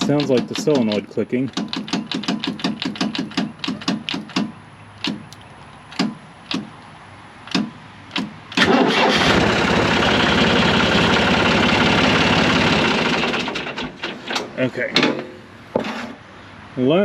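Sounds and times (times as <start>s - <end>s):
starter cranking engine: 0.0s - 4.4s, 8.1s - 14.6s
starter solenoid clicking: 7.5s - 10.2s.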